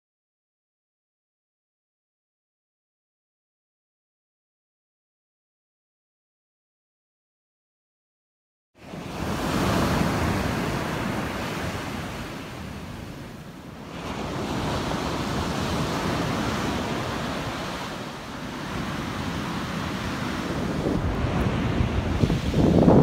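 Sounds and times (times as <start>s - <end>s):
ocean surf breaking: 8.8s - 23.0s
wind buffeting microphone: 9.1s - 23.0s.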